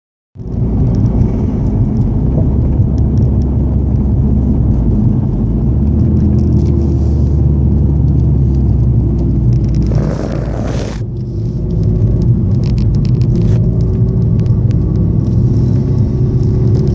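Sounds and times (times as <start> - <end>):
car engine low exhaust note: 0.4 - 16.9
rush of noise: 9.6 - 11.1.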